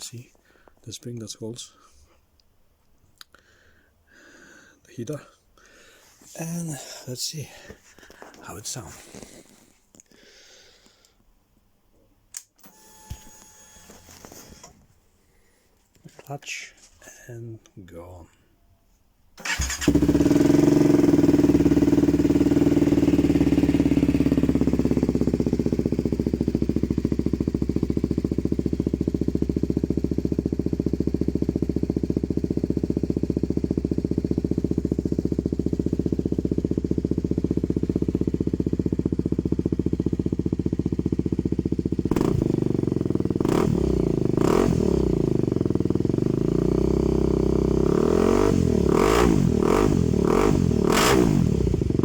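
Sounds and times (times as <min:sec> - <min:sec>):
motorcycle engine idling: 0:19.4 - 0:52.0.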